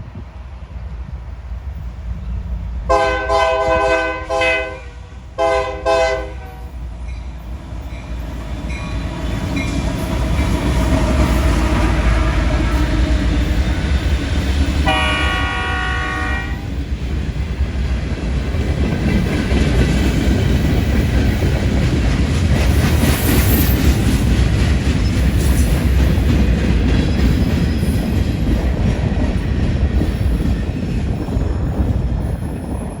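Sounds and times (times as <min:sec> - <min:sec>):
train wheels rumbling on rail: 0:00.0 - 0:33.0
locomotive air horn blast: 0:02.9 - 0:06.6, 0:14.8 - 0:16.6.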